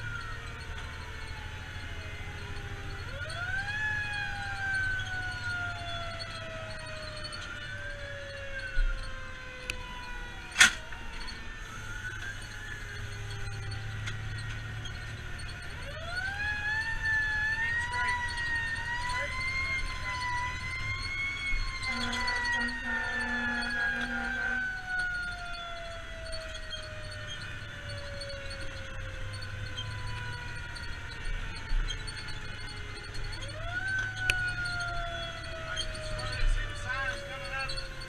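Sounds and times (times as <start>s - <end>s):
diesel engine rumble: 0.0s - 38.0s
fire engine siren: 0.0s - 38.0s
horn blasts: 21.7s - 24.8s.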